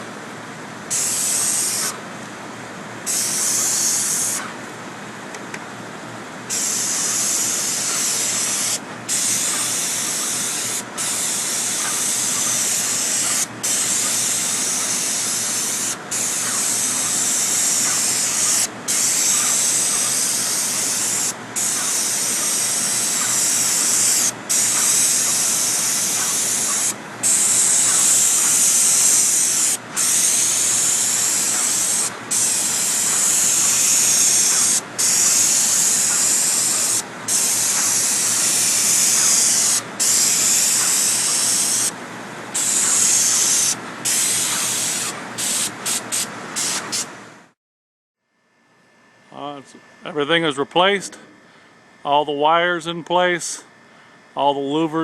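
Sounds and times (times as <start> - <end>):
pressure washer spraying: 0.9 - 2.0, 3.1 - 4.5, 6.5 - 42.0, 42.6 - 47.1.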